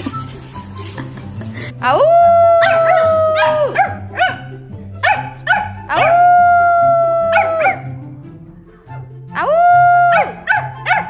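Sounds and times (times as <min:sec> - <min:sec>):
dog howling: 0:02.2 - 0:04.0, 0:05.9 - 0:08.0, 0:09.7 - 0:11.0
dog yipping: 0:02.6 - 0:06.2, 0:07.3 - 0:07.9, 0:10.1 - 0:11.0.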